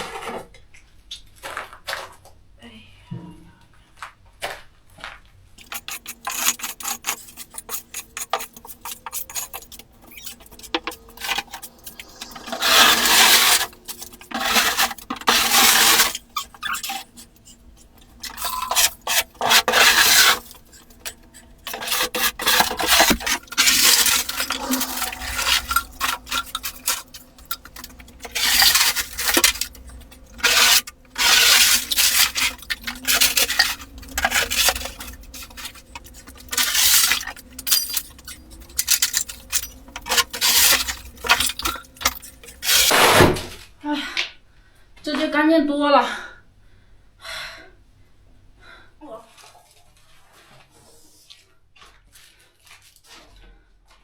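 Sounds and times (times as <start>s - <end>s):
rubbish scraped across floor: 5.6s - 43.7s.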